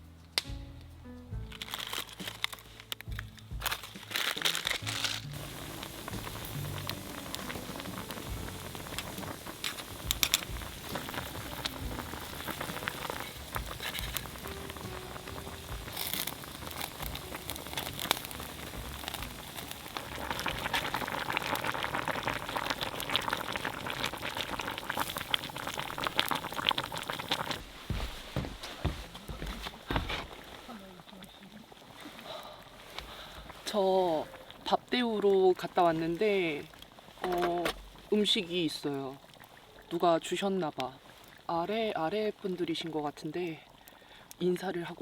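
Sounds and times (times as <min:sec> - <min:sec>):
wood fire crackling: 0:01.2 - 0:45.0
food boiling and sizzling: 0:01.3 - 0:45.0.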